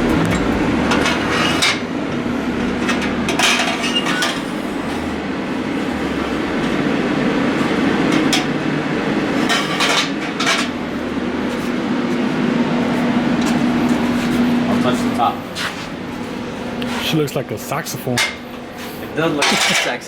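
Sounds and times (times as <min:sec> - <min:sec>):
metal pipes clinking and clanking: 0:00.0 - 0:01.8
low hum: 0:00.0 - 0:02.6.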